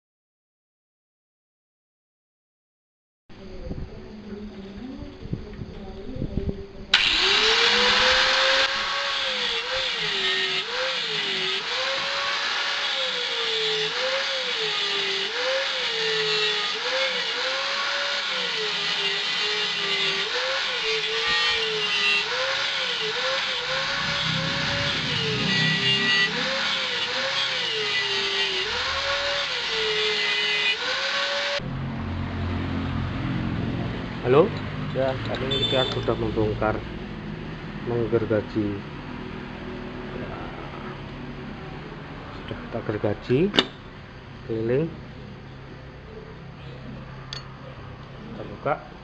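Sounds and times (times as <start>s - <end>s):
power saw cutting through metal: 7.0s - 31.7s.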